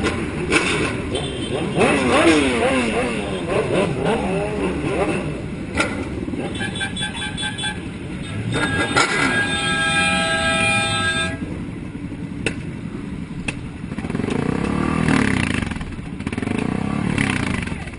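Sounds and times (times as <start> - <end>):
engine revving: 0.0 - 6.7, 13.9 - 17.9
vehicle horn blaring: 6.4 - 11.5.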